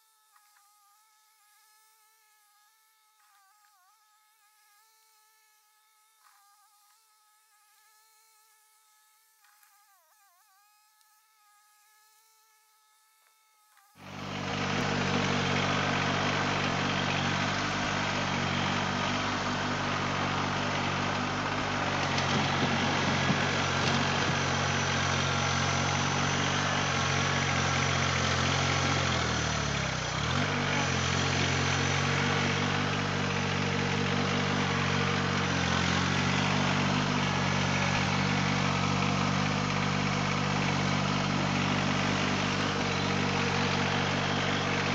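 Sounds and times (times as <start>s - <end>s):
faint buzz: 0.0s - 44.9s
tractor diesel engine running: 14.0s - 44.9s.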